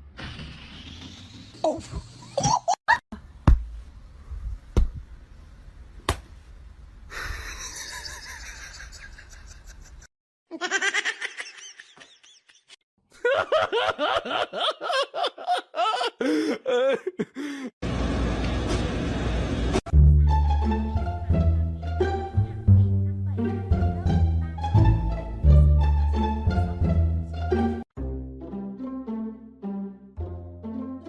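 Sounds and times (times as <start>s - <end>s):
people laughing: 7.2s - 17.7s.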